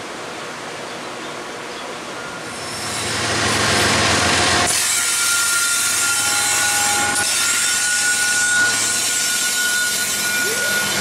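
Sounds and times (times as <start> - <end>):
freight train passing: 0.0 - 11.0
high wheel squeal: 2.2 - 3.6, 4.7 - 11.0
lower wheel squeal: 2.2 - 3.6, 5.0 - 11.0.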